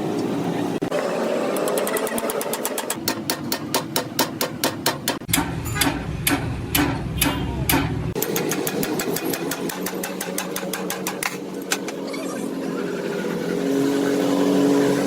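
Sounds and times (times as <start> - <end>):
fast mechanical clicking: 1.4 - 3.3.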